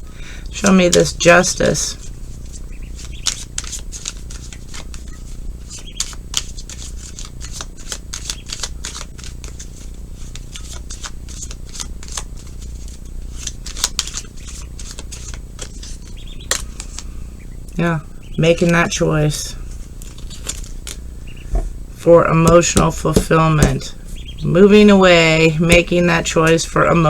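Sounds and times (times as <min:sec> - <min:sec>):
steady low hum: 0:00.0 - 0:27.0
cards being shuffled: 0:02.4 - 0:17.1, 0:22.3 - 0:24.0.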